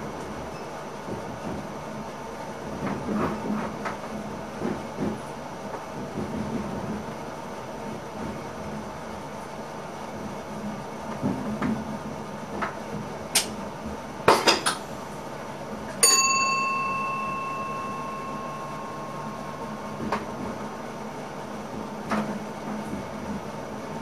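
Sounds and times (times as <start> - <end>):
train cab running noise: 0.0 - 24.0
bell ringing: 16.0 - 21.4.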